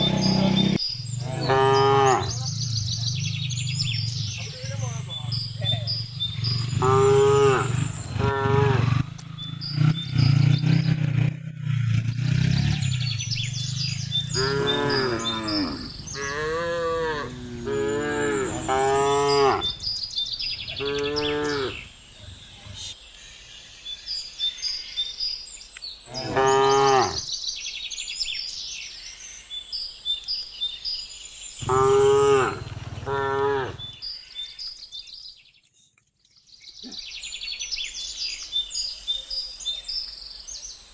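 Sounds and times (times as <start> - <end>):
cattle mooing: 0.0 - 2.5, 6.5 - 9.1, 14.2 - 19.8, 20.7 - 21.8, 26.1 - 27.2, 31.6 - 34.0
small birds chirping: 0.0 - 40.9.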